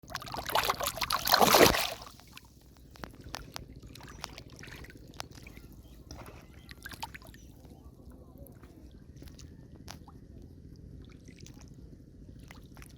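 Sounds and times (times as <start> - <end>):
river water splashing: 0.0 - 2.5, 3.1 - 7.6, 10.9 - 12.9
small splashes and clicks: 0.0 - 12.9.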